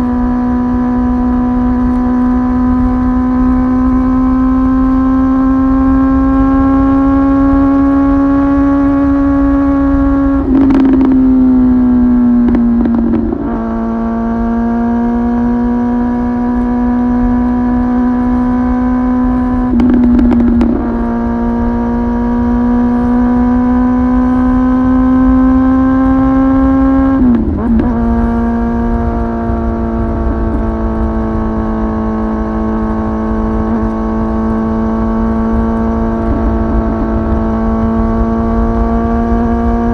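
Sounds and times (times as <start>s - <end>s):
sport bike engine running: 0.0s - 39.9s.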